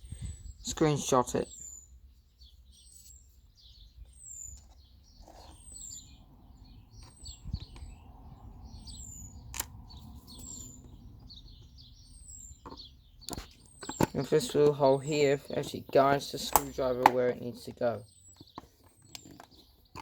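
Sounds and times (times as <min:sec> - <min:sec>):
birds chirping: 0:00.0 - 0:20.0
sharp click: 0:16.4 - 0:17.2.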